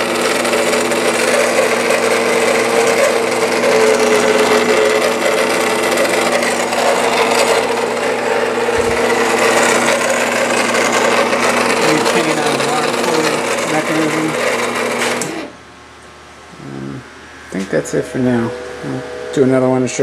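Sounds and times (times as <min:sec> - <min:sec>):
mechanical whirring and rubbing: 0:00.0 - 0:15.6
motor hum: 0:00.0 - 0:20.0.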